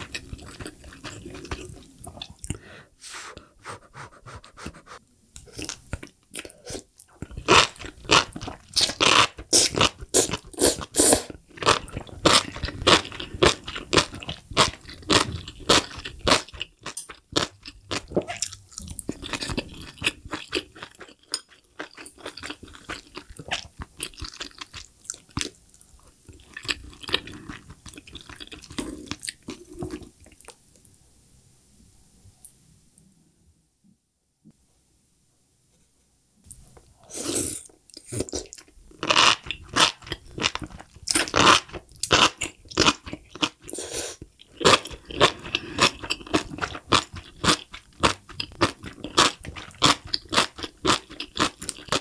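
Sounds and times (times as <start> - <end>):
crunchy chewing: 36.5 - 52.0.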